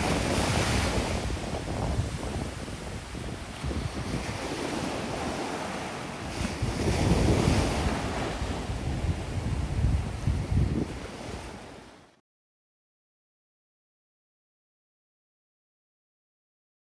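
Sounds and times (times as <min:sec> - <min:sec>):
wind buffeting microphone: 0:00.0 - 0:12.0
waves washing on beach: 0:00.0 - 0:12.2.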